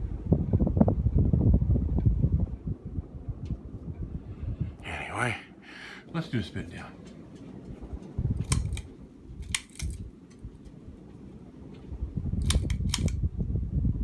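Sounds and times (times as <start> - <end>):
sharp switch clicks: 8.4 - 10.4, 12.4 - 13.2.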